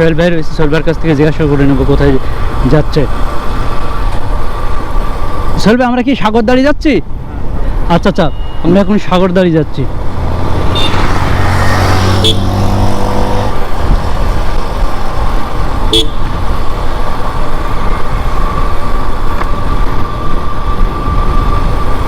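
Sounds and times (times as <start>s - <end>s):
wind and road noise: 0.0s - 22.0s
vehicle horn sounding: 10.7s - 11.1s, 12.1s - 12.6s, 15.9s - 16.3s.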